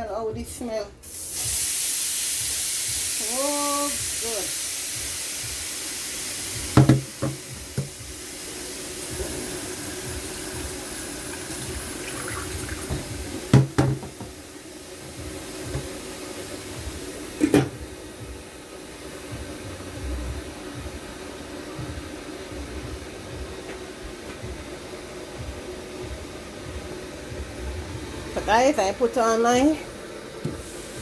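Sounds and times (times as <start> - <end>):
steady hiss: 1.0 - 31.0
metal pots and utensils clanking: 17.4 - 17.8.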